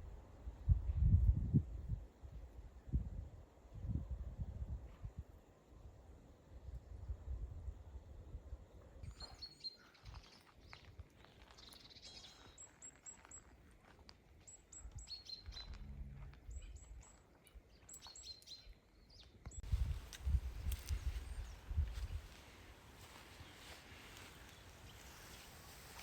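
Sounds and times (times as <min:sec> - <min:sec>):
songbirds chirping: 0:07.9 - 0:26.0
low rumble: 0:15.5 - 0:16.9.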